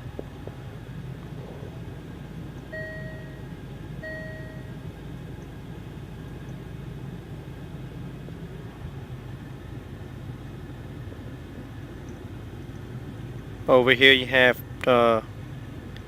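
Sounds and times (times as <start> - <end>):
low engine hum: 0.0 - 16.0
short electronic beeps: 2.7 - 4.8.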